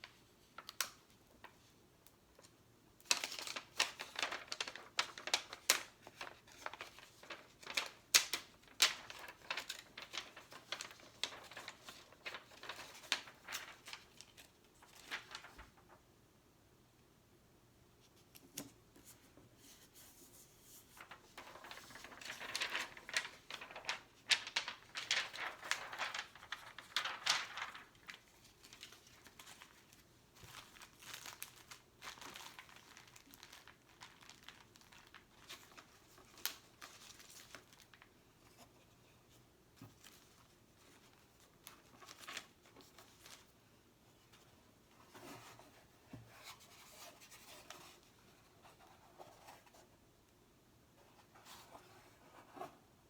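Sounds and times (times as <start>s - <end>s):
stickers crinkling: 21.0s - 29.7s, 30.4s - 38.0s.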